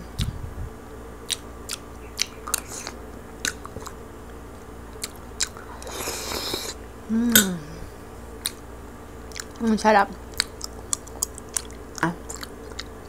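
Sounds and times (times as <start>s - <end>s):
crunching while chewing: 1.2s - 4.0s, 10.3s - 13.0s
person chewing wetly: 1.3s - 4.0s, 5.0s - 6.8s, 9.3s - 9.6s, 10.3s - 13.0s
person humming mm: 7.1s - 7.9s.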